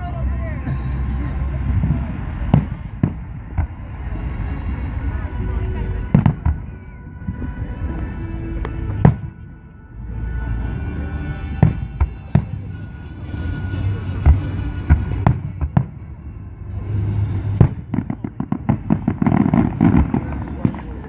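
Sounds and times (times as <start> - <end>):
firework booms: 6.1 - 7.5, 9.0 - 9.4, 17.4 - 21.0
firework crackling pops: 17.6 - 21.0.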